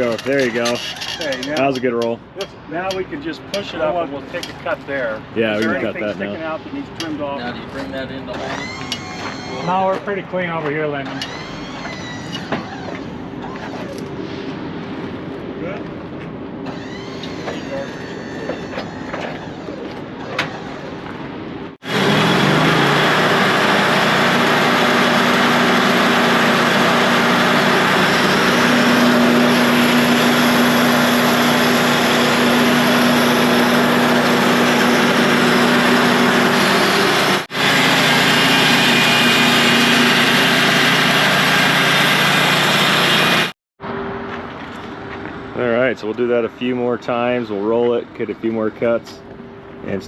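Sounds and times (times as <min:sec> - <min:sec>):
band saw blade cutting wood: 0:21.8 - 0:43.5
sawmill engine under load: 0:21.8 - 0:43.6.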